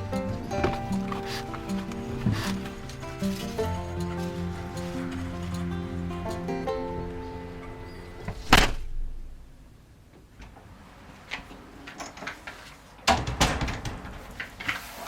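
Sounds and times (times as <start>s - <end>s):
sharp loud bang: 8.4s - 9.5s
quick knocks and clattering: 11.9s - 15.0s.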